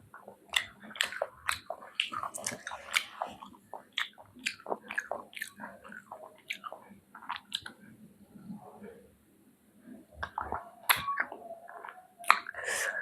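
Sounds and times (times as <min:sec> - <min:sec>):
wet chewing and sucking: 0:00.1 - 0:07.9, 0:10.2 - 0:13.0.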